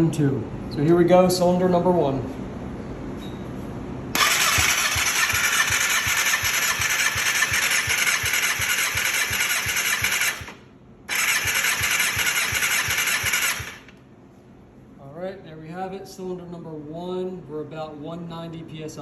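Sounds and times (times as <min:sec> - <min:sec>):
starter motor cranking engine: 0:04.2 - 0:14.0.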